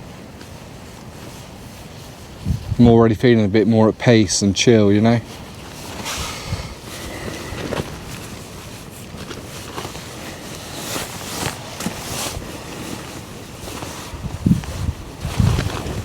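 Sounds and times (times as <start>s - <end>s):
rustling and handling noise: 0.0s - 2.9s, 4.1s - 16.0s
wind gusting on microphone: 2.3s - 3.4s, 5.7s - 9.6s, 13.9s - 16.0s.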